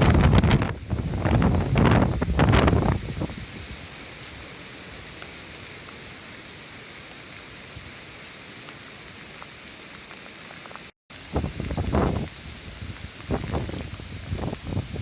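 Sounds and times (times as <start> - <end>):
rushing water hiss: 0.0 - 15.0.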